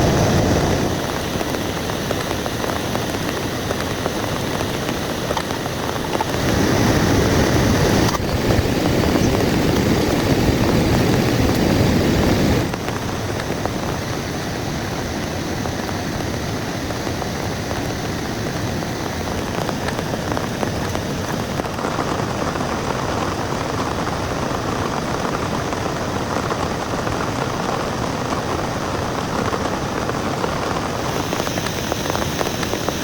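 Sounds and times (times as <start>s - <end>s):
deep rumbling noise: 0.0s - 14.0s
heavy rain pouring: 0.0s - 33.0s.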